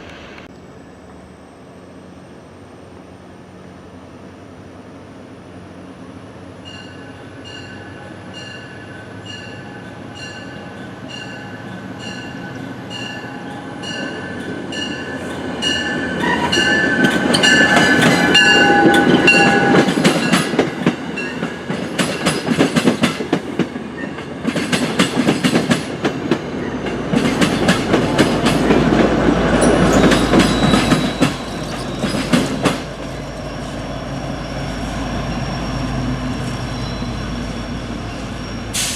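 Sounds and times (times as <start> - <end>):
passenger train passing: 0.0 - 38.9
crossing bell ringing: 6.6 - 22.4, 29.4 - 38.7
train wheels clattering over rail joints: 16.8 - 33.8.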